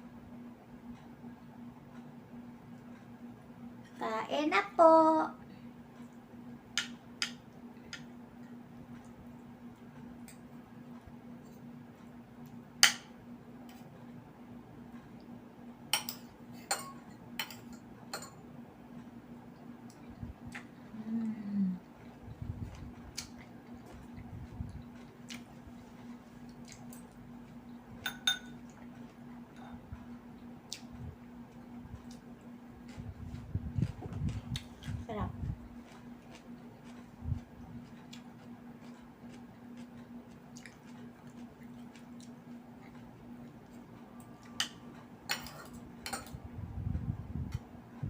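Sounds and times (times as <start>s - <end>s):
faint steady hum: 0.0s - 48.0s
soft chewing: 5.5s - 12.7s, 18.9s - 47.7s
utensil clinking on a plate: 28.0s - 28.6s.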